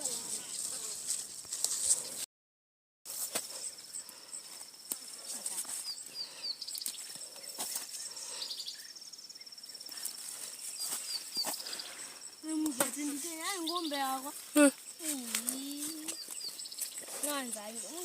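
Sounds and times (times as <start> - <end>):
insect trilling: 3.5 - 18.0
bird chirping: 5.7 - 18.0.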